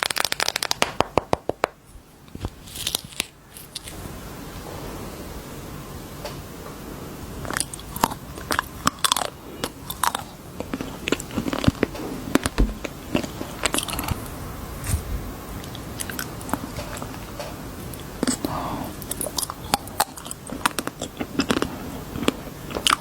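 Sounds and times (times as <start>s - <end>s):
chewing crunchy candy: 7.5s - 14.3s, 17.9s - 23.0s.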